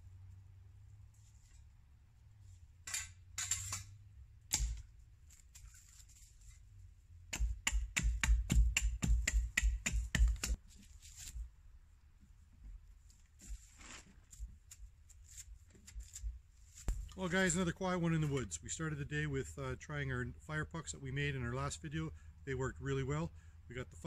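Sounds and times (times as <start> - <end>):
wood knocking on wood: 7.3 - 10.6.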